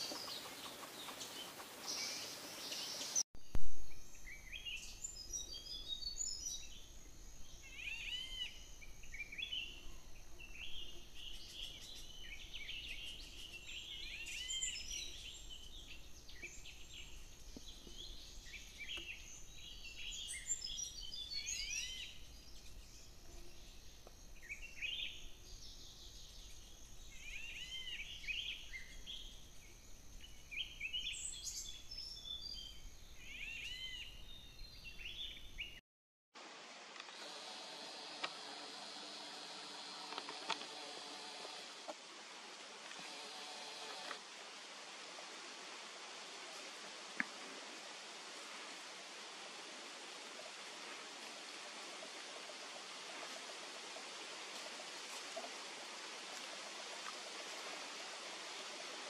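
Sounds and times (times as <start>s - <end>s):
small birds chirping: 0.0s - 3.2s, 3.9s - 35.8s.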